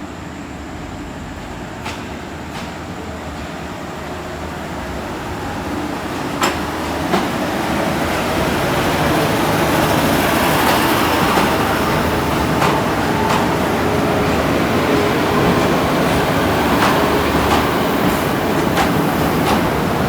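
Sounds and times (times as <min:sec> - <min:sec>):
train rolling along track: 0:00.0 - 0:20.0
wheels clicking over rail joints: 0:04.4 - 0:20.0.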